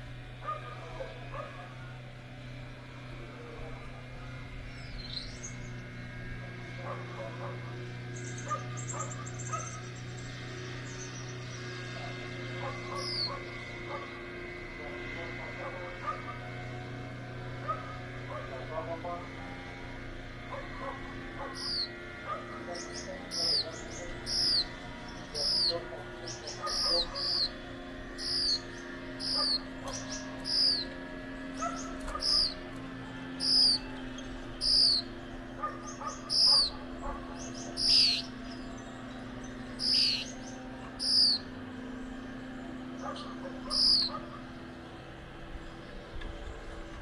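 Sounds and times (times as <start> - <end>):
steady low hum: 0.0 - 47.0
finch high-pitched calls: 8.1 - 14.2, 20.6 - 32.8, 33.4 - 41.6, 43.0 - 44.5.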